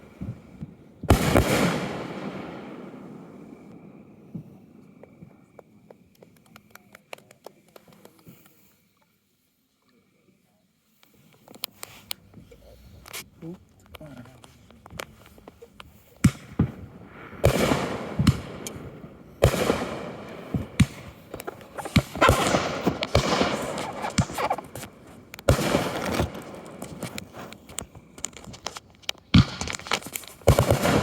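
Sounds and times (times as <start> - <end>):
firework bangs: 0.0 - 5.6, 16.2 - 28.2, 29.3 - 31.0
firework crackling: 0.0 - 8.3, 14.2 - 31.0.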